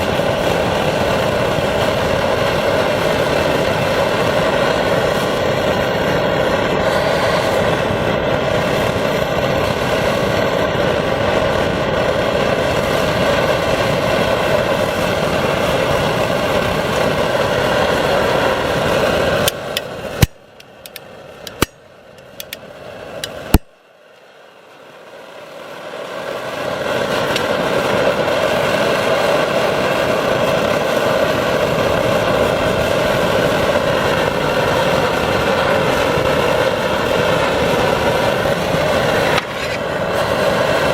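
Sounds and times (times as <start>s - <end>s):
pressure stove roaring: 0.0s - 40.9s
sharp clicks: 19.5s - 22.6s.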